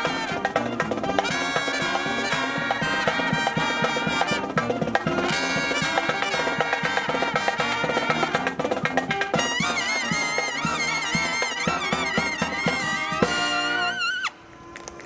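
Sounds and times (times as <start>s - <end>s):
drum strokes: 0.0s - 13.9s
brass marching band playing: 0.0s - 14.4s.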